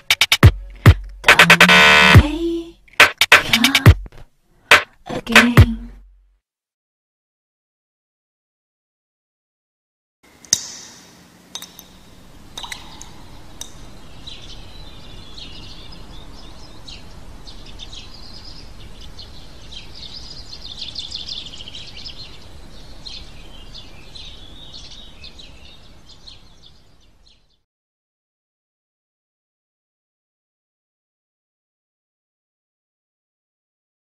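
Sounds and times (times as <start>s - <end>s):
birds chirping: 11.6s - 27.6s
tap dripping: 12.6s - 13.8s.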